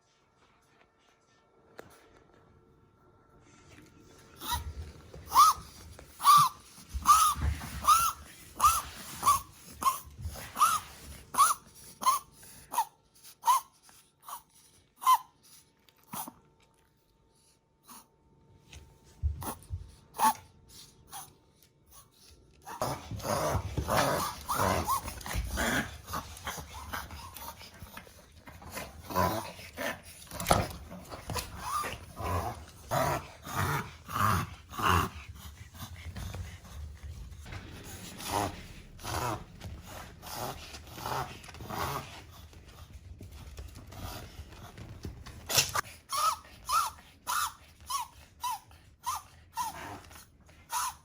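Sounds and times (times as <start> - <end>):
small dogs high cries: 4.4 - 13.7, 15.0 - 15.3, 22.6 - 27.6, 30.6 - 32.5, 46.1 - 49.8, 50.7 - 51.0
dog growling: 22.6 - 42.8.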